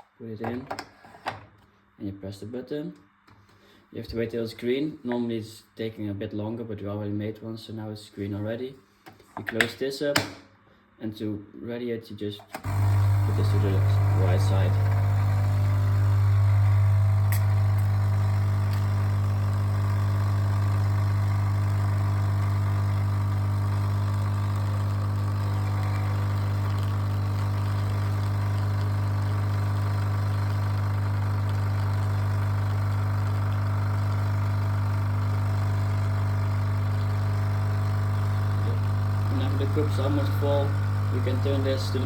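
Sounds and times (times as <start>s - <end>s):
coffee machine pump humming: 12.6s - 42.0s.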